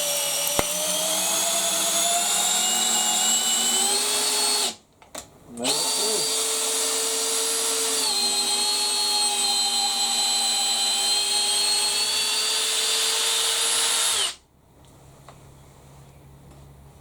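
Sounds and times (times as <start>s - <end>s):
hammer drill motor whine: 0.0s - 4.8s, 5.6s - 14.4s.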